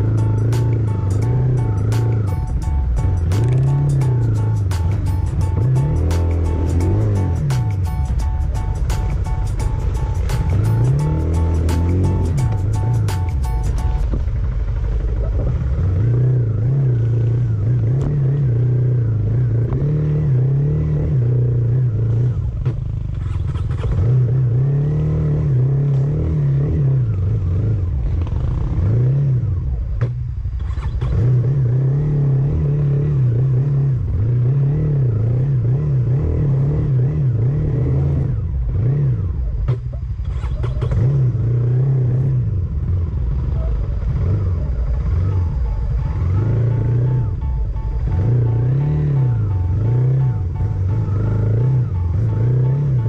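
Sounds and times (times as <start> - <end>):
vehicle engine droning: 0.0 - 53.0.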